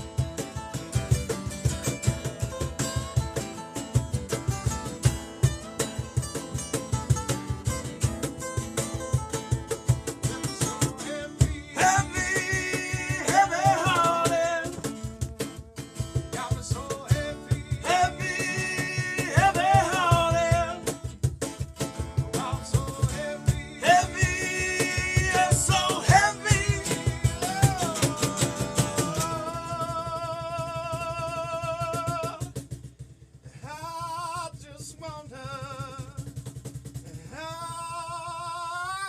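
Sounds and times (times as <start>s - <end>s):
strummed acoustic guitar: 0.0s - 39.0s
person singing: 10.3s - 14.9s, 16.3s - 20.9s, 22.3s - 32.5s.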